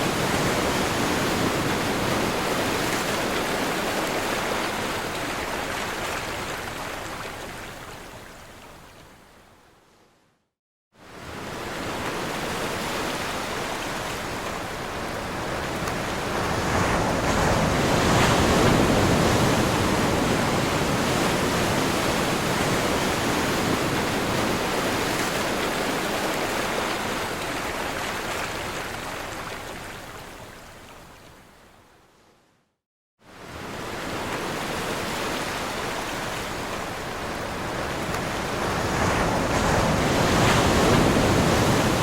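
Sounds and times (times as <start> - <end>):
ocean waves breaking: 11.2 - 29.8, 33.3 - 42.0.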